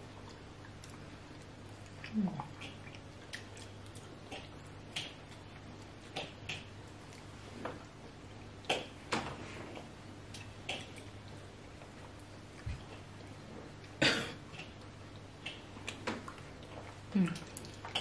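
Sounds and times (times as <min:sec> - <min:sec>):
wet chewing mouth smacks: 0:00.2 - 0:07.3, 0:09.7 - 0:18.0.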